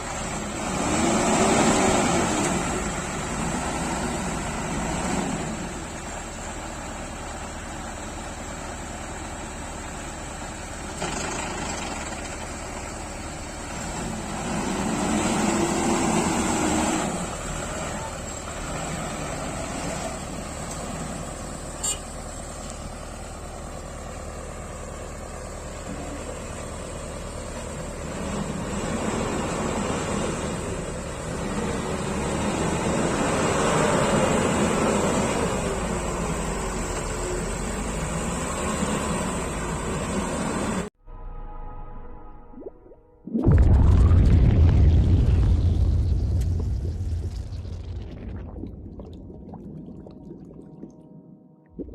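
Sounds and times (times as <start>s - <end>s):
heavy vehicle engine running: 0.0s - 41.0s.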